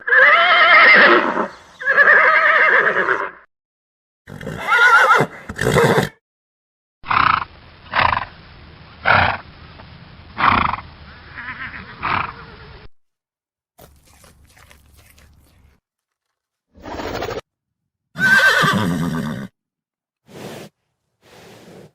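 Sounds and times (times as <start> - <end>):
horse whinnying: 0.0 - 3.4, 4.3 - 6.2, 18.2 - 19.5.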